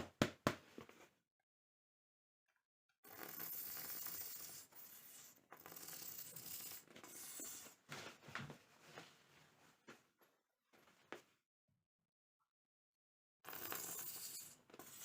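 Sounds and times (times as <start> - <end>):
rough rasping rubbing strokes: 3.3 - 7.8.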